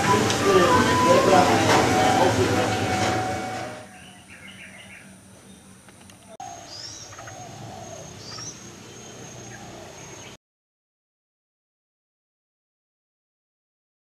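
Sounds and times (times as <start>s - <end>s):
steady high-pitched tone: 0.0s - 3.8s
birds chirping: 0.0s - 10.4s.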